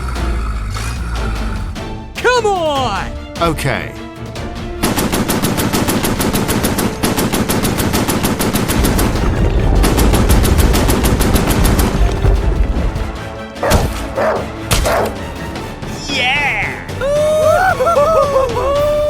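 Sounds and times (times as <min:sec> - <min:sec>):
machine-gun fire: 0:04.8 - 0:13.0
heavy low rumble: 0:08.7 - 0:13.5.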